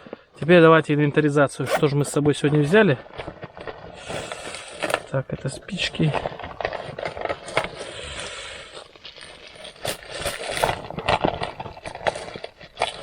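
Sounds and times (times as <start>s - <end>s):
bag rustling: 1.6s - 4.8s.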